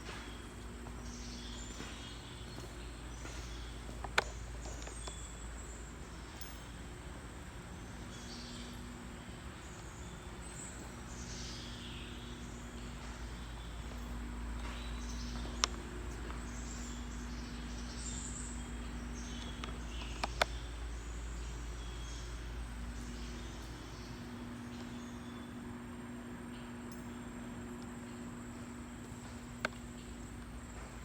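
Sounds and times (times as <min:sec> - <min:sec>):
birds chirping: 0:00.0 - 0:31.0
on-and-off hum: 0:00.0 - 0:31.0
sharp clicks: 0:19.4 - 0:20.6.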